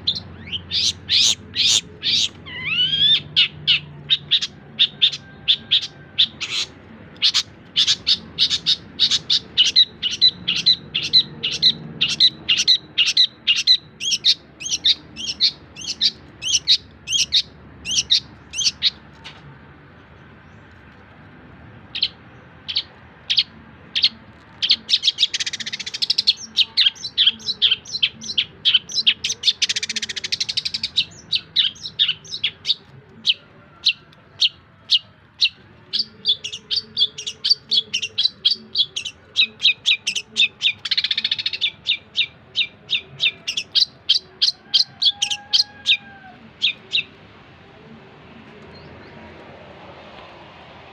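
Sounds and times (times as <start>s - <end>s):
bird singing sharp high chirps: 22.0s - 45.5s.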